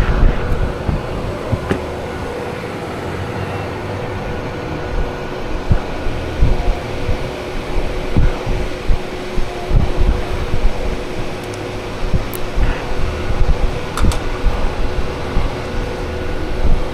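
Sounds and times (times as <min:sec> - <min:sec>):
dull low thumps: 0:00.0 - 0:05.0.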